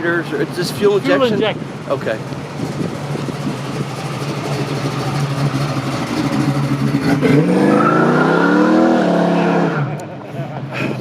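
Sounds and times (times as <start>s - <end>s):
car engine revving: 2.1s - 10.1s.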